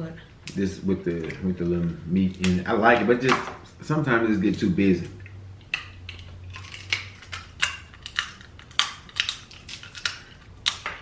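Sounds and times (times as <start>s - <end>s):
low steady hum: 0.0s - 11.0s
crab shells cracking: 4.5s - 11.0s.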